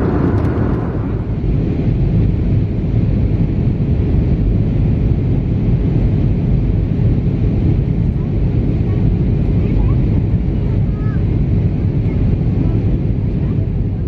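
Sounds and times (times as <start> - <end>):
moving vehicle rumbling roar: 0.0 - 3.4.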